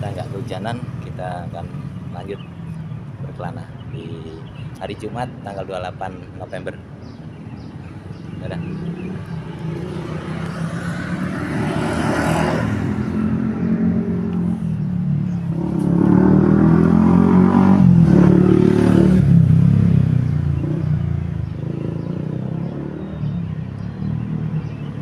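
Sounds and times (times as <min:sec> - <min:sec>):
vehicle engine revving: 0:07.6 - 0:25.0.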